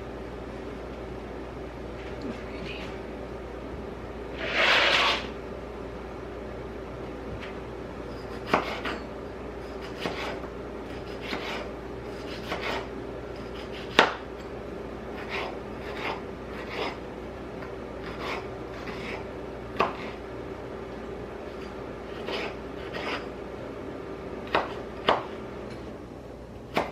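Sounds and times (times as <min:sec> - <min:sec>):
knife cutting vegetables on board: 0:08.4 - 0:09.0, 0:09.8 - 0:14.2, 0:15.2 - 0:17.0, 0:18.0 - 0:19.2, 0:19.8 - 0:20.2, 0:22.1 - 0:23.2.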